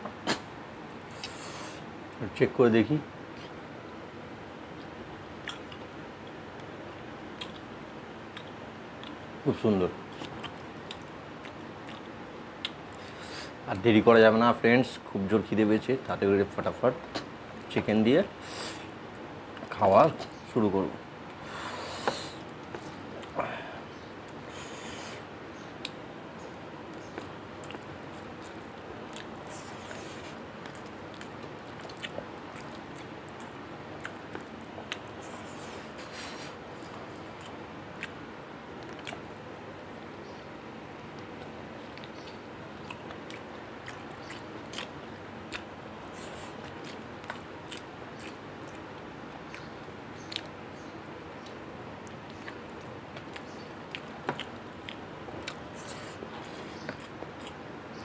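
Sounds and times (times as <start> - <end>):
mouth clicks and smacks: 0.0 - 0.5, 38.8 - 39.3
background hiss: 0.0 - 58.0
person chewing: 1.1 - 1.8, 4.8 - 5.8, 10.1 - 13.2, 26.9 - 38.2, 38.8 - 39.3, 41.2 - 50.5, 51.4 - 57.6.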